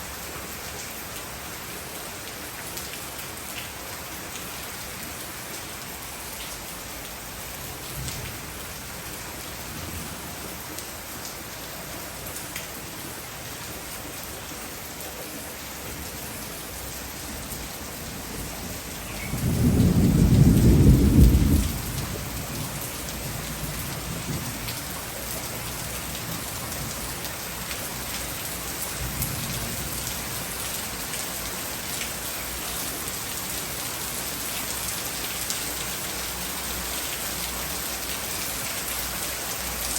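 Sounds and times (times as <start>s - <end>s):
heavy rain pouring: 0.0s - 39.9s
low rumble of thunder: 17.8s - 24.8s.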